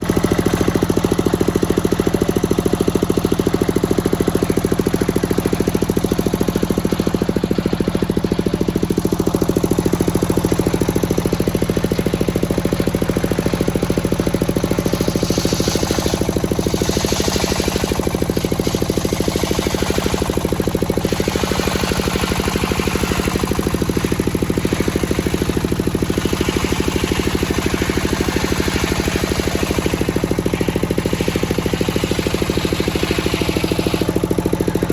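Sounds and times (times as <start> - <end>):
sawmill engine running: 0.0 - 34.9
bursts of hissing: 14.8 - 19.7.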